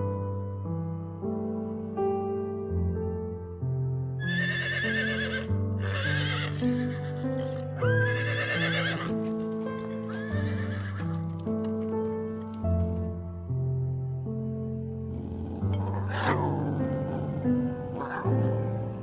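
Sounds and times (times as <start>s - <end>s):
calm background music: 0.0s - 19.0s
horse whinnying: 4.2s - 9.1s, 10.1s - 11.0s, 15.1s - 19.0s.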